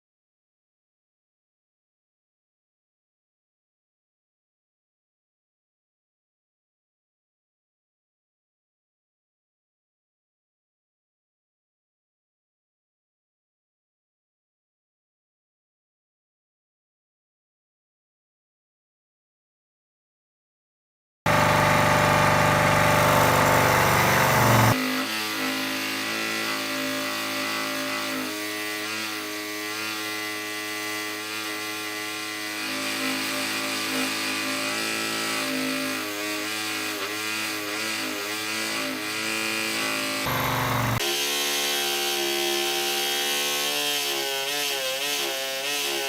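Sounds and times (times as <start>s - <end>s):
small electric power tool running: 21.3s - 46.0s.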